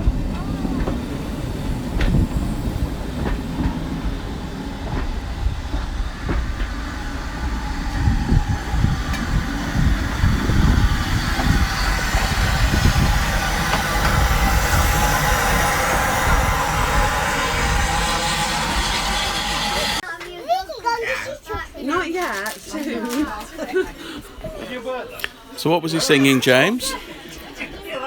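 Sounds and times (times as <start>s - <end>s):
train rumbling on track: 0.0s - 20.0s
wheels clicking over rail joints: 0.0s - 20.0s.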